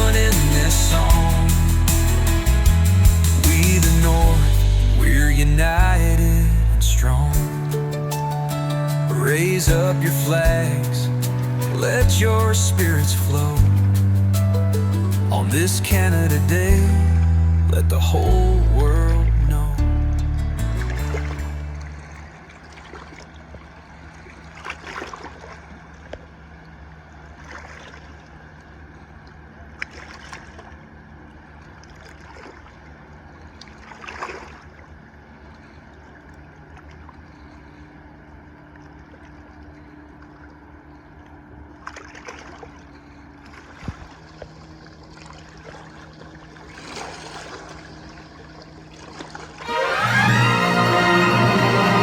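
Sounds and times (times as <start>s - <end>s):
boat engine running: 0.0s - 8.2s, 15.1s - 24.6s
water sloshing: 20.7s - 49.7s.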